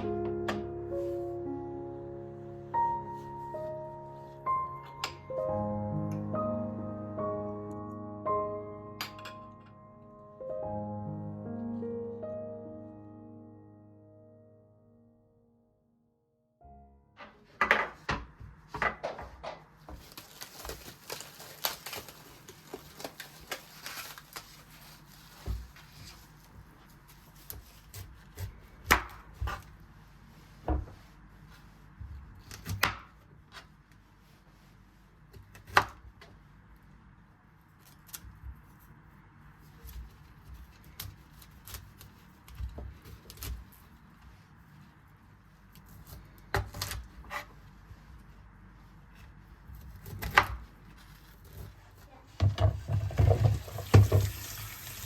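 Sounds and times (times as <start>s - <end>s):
soft kitchen clicks and knocks: 17.2s - 20.0s, 52.3s - 54.4s.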